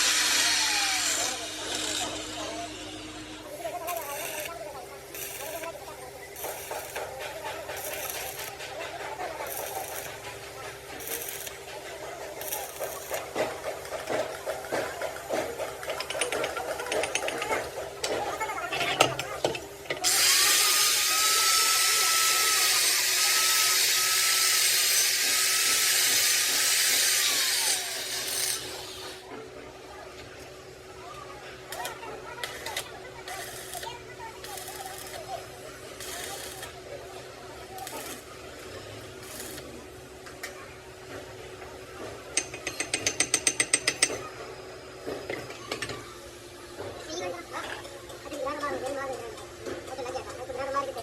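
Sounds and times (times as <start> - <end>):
power tool motor whine: 0.0 - 2.9.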